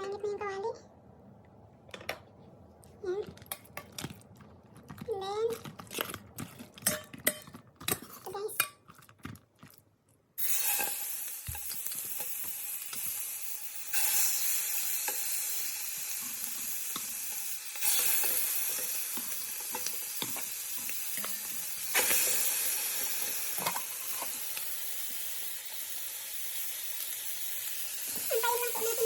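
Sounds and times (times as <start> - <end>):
chicken sizzling in a hot pan: 10.4 - 29.0.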